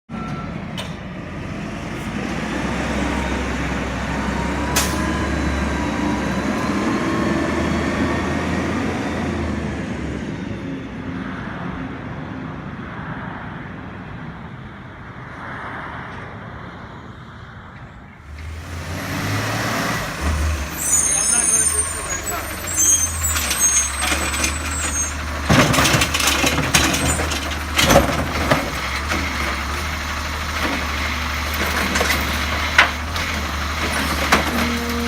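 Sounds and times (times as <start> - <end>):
garbage truck engine running: 18.3 - 35.0.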